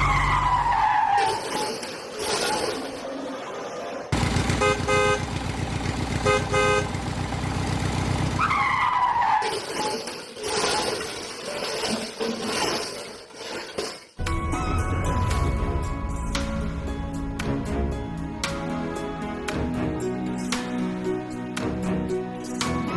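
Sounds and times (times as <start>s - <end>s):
falling squeal: 0.0s - 3.5s
truck engine rumbling: 4.1s - 9.1s
truck horn honking: 4.4s - 5.5s, 6.2s - 7.2s
music: 14.2s - 22.9s.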